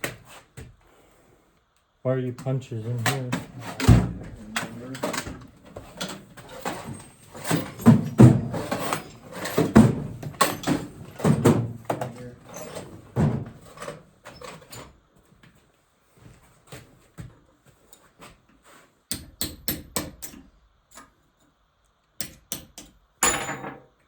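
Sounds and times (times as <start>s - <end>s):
metal tools clattering: 3.2s - 14.8s.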